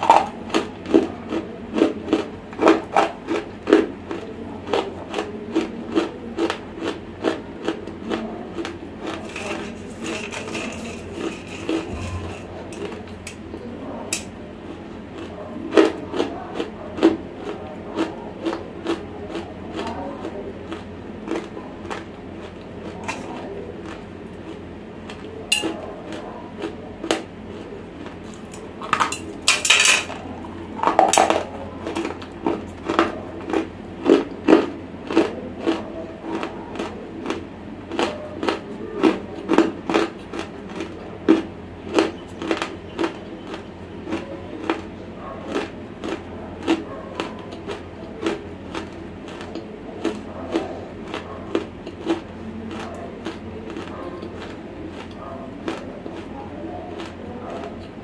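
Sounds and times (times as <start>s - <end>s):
crunching and chewing: 0.0s - 58.0s.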